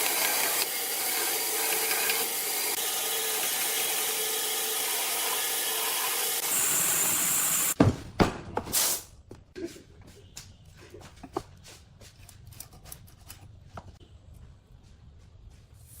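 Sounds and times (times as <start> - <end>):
power tool cutting wood: 0.0 - 7.8.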